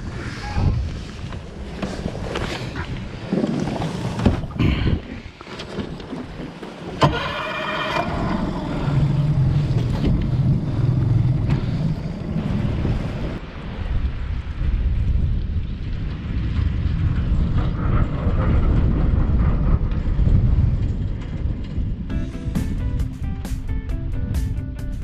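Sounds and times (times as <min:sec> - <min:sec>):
boat noise on water: 0:00.0 - 0:13.6
wind buffeting microphone: 0:00.0 - 0:25.0
steady low drone: 0:07.8 - 0:14.2, 0:14.9 - 0:25.0.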